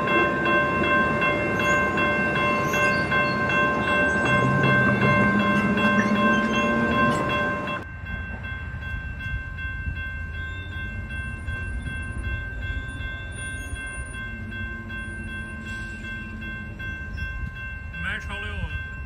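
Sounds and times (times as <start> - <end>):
diesel train rumbling: 0.0 - 19.0.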